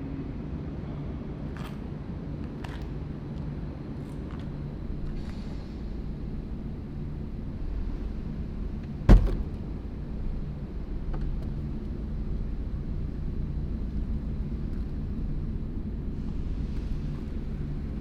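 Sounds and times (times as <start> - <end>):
steady low rumble: 4.5 - 18.0
car door slamming: 7.0 - 10.0.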